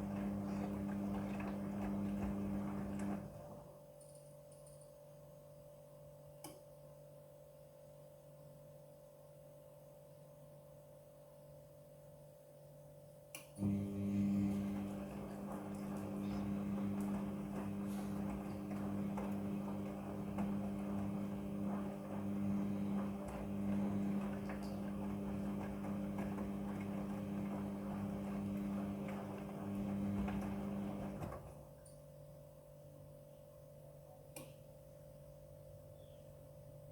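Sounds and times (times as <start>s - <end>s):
washing machine motor hum: 0.0s - 3.8s, 13.6s - 31.8s
water noise: 14.3s - 31.4s.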